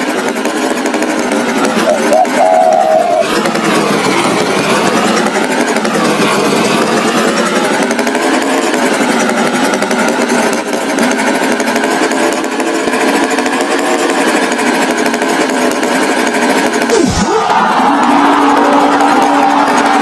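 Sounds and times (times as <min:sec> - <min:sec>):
motor rattling: 0:00.0 - 0:20.0.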